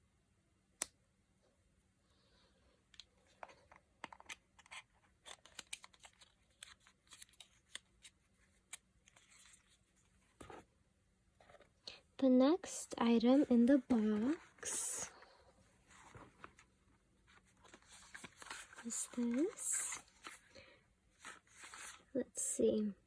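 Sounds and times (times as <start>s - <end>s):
packaging clicks and rustling: 3.0s - 9.8s, 17.4s - 20.6s.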